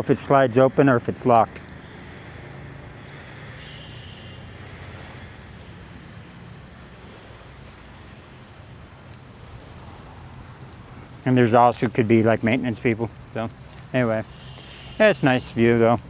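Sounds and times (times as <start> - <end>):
distant road traffic hum: 0.0 - 16.0.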